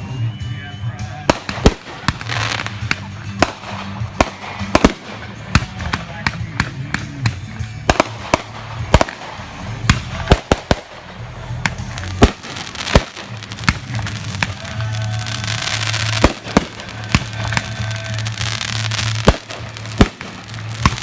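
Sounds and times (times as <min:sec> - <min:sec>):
crackling firework stars: 0:01.2 - 0:21.0
firework shells bursting: 0:07.9 - 0:21.0.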